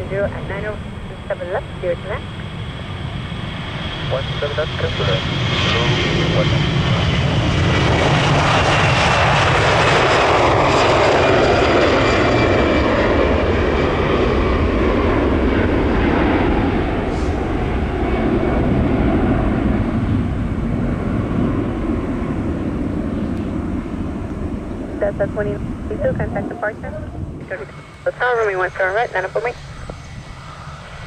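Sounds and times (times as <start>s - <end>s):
jet airliner passing by: 0.0s - 31.0s.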